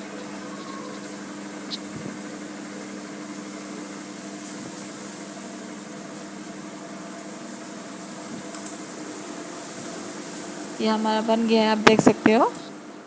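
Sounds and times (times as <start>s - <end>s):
microwave fan humming: 0.0s - 13.0s.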